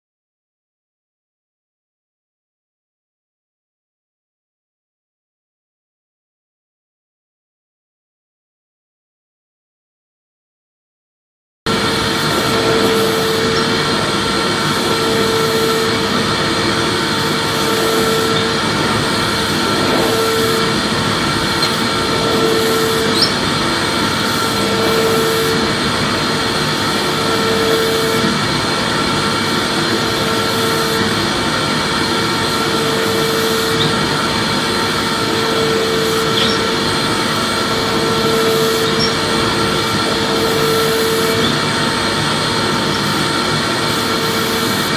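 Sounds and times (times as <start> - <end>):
vacuum cleaner running: 11.7 - 44.9.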